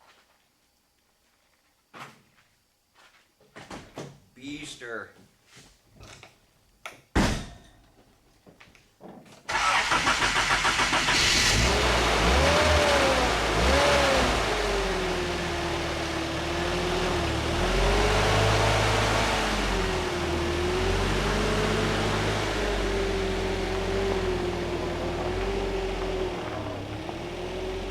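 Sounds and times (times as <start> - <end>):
thump: 7.2 - 7.7
truck engine starting and running: 9.5 - 27.9.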